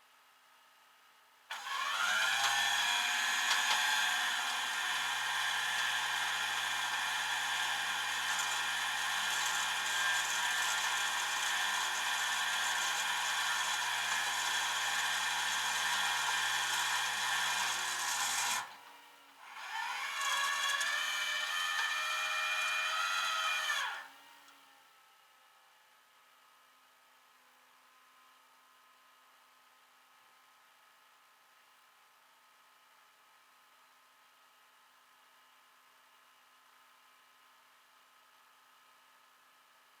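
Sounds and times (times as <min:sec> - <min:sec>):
motor whining: 0:01.5 - 0:18.8, 0:19.4 - 0:24.3.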